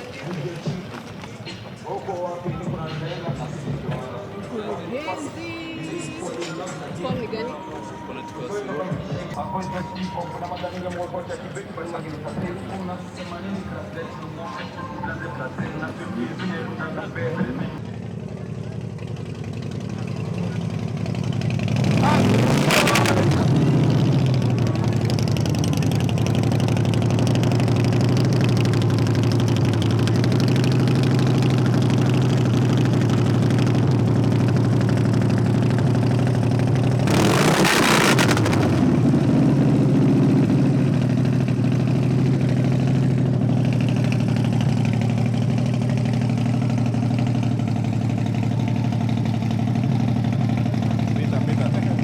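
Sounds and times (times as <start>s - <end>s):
car engine idling: 0.0s - 52.0s
loud rushing burst: 37.0s - 39.5s.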